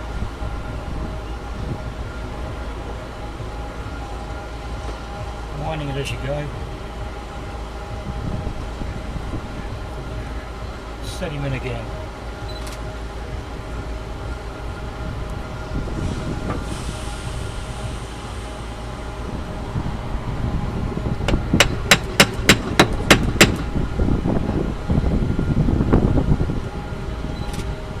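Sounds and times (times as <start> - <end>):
steady background hum: 0.0 - 28.0
mallet tapping on metal iron: 21.6 - 23.7.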